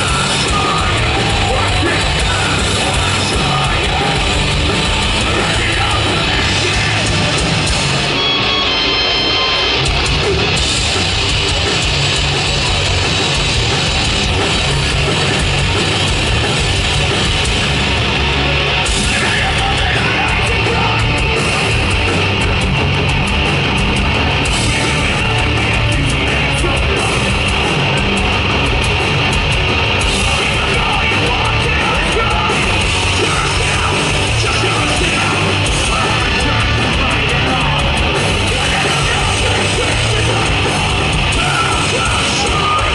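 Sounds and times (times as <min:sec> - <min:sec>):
bass guitar: 0:00.0 - 0:42.9
distorted guitars: 0:00.0 - 0:42.9
pounding drum kit: 0:00.0 - 0:42.9.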